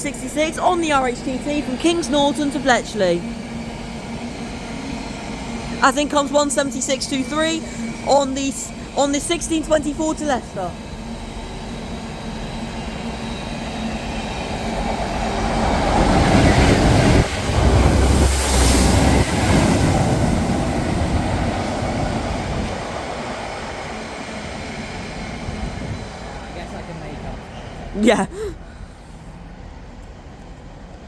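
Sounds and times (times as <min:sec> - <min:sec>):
diesel train rumbling: 0:00.0 - 0:31.0
high wheel squeal: 0:04.5 - 0:17.2, 0:23.1 - 0:26.0.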